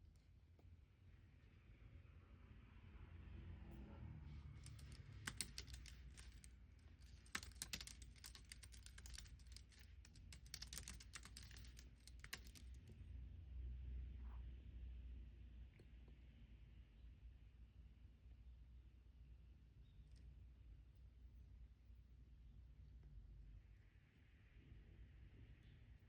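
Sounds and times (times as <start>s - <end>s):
faint low hum: 0.0s - 26.0s
typing on computer keyboard: 4.6s - 12.8s.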